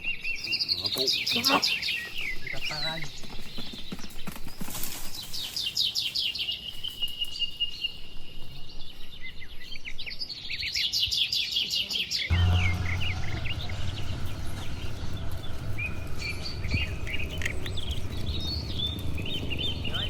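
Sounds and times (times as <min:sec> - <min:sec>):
small birds chirping: 0:00.0 - 0:20.0
steady high trill: 0:12.3 - 0:18.6
low steady sound: 0:12.3 - 0:19.7.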